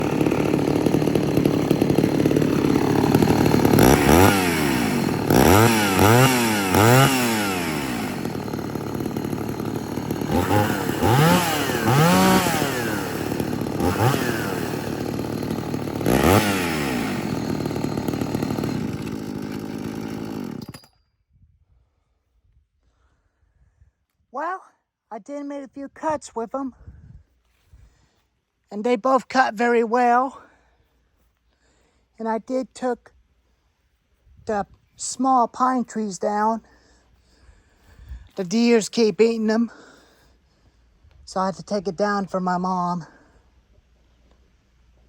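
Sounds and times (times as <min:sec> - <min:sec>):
chainsaw engines revving and idling: 0:00.0 - 0:20.9.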